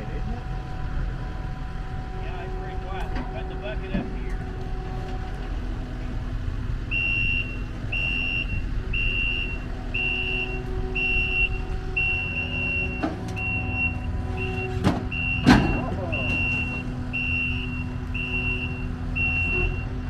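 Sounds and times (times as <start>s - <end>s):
diesel engine running: 0.0s - 20.0s
reverse alarm beeping: 6.8s - 20.0s.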